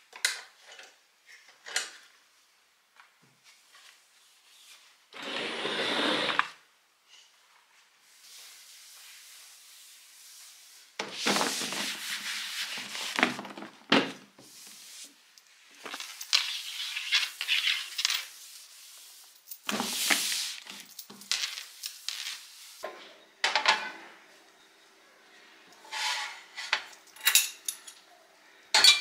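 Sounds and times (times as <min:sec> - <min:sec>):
rubbing and scraping: 0:10.4 - 0:13.5.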